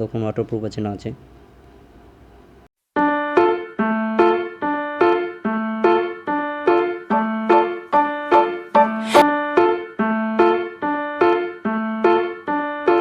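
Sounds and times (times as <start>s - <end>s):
electric piano chords: 3.0s - 13.0s.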